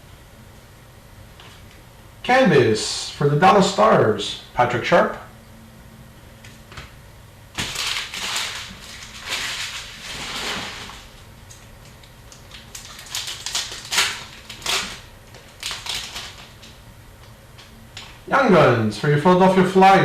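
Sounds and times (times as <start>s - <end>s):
foil wrappers crinkling and tearing: 7.5s - 16.8s.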